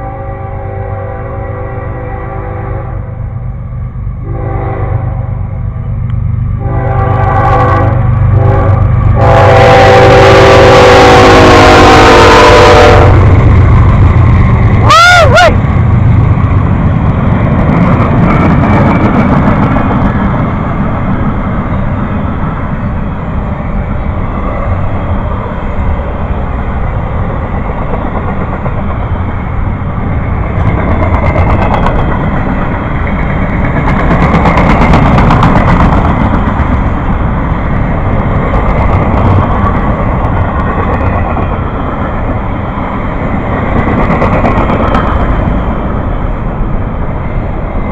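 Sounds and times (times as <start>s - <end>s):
train horn blast: 0.0s - 3.3s, 4.2s - 5.4s, 6.6s - 13.3s
train rumbling past: 0.0s - 47.9s
train wheels clicking: 13.2s - 22.6s, 27.0s - 46.4s.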